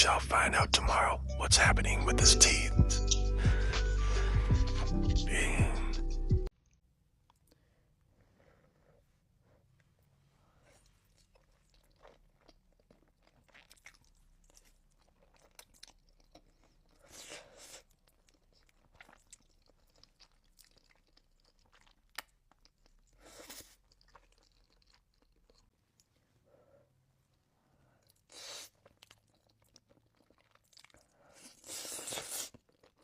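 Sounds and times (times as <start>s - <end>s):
person chewing: 10.6s - 26.2s, 27.3s - 33.0s.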